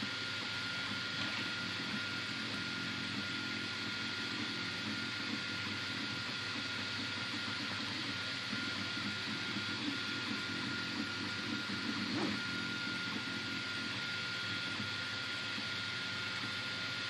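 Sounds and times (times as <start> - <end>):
thin high whine: 8.6 - 13.8.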